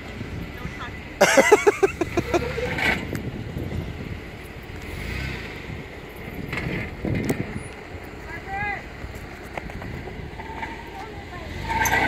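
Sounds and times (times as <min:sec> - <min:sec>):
wind buffeting microphone: 0:00.0 - 0:08.2
engine low rumble: 0:00.0 - 0:12.0.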